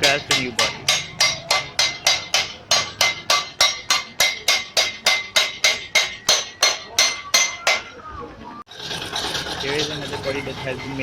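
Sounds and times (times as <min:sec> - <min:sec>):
hammer striking sheet metal: 0:00.0 - 0:08.0.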